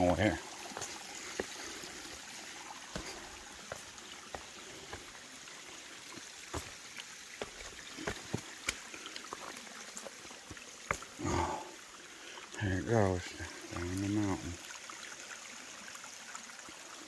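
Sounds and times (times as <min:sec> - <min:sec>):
footsteps on rock: 0:00.0 - 0:11.2
water trickling down rocks: 0:00.0 - 0:17.0.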